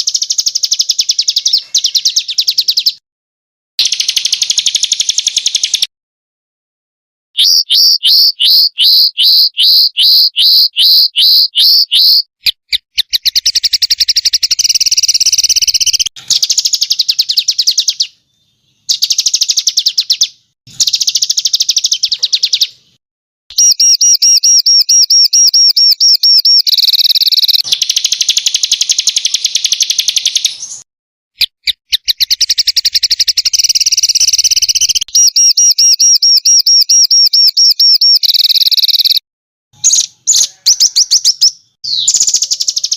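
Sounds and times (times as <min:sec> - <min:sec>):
songbird chirps and trills: 0:00.0 - 0:03.0, 0:03.8 - 0:05.9, 0:07.4 - 0:23.0, 0:23.6 - 0:30.8, 0:31.7 - 0:39.2, 0:39.8 - 0:42.9.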